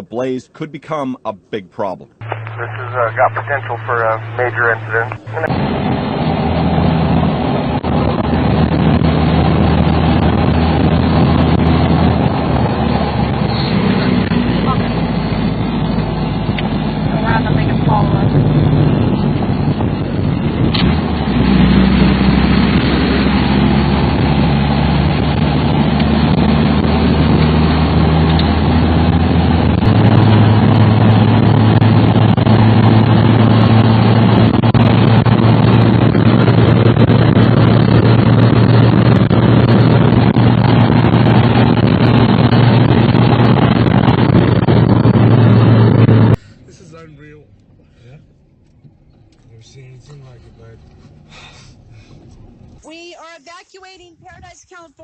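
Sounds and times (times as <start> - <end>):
loud rush of noise: 2.2 - 46.4
low engine hum: 2.2 - 52.8.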